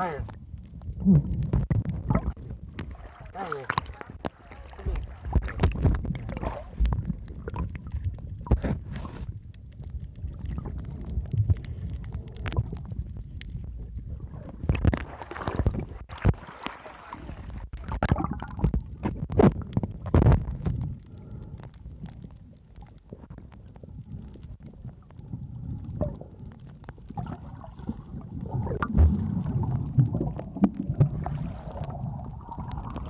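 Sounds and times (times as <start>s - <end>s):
low rumbling water: 0.0s - 33.0s
knocks and splashes: 1.5s - 7.7s, 14.6s - 20.8s, 27.1s - 31.9s.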